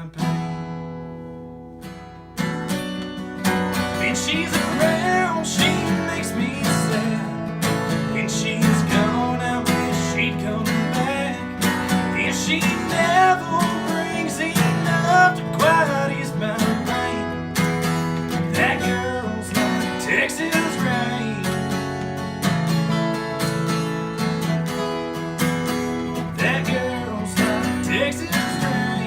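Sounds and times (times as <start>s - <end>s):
acoustic guitar strumming: 0.0s - 29.0s
guitar lead with bending notes: 0.0s - 29.0s.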